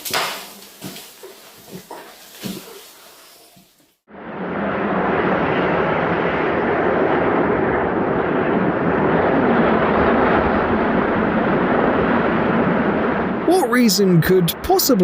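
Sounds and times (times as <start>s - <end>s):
blizzard wind rushing: 4.1s - 15.0s.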